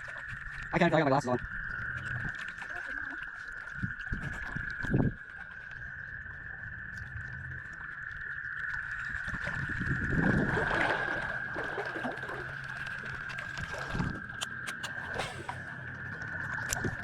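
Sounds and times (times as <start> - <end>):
creek water splashing: 0.0 - 17.0
steady high-pitched drone: 6.0 - 17.0.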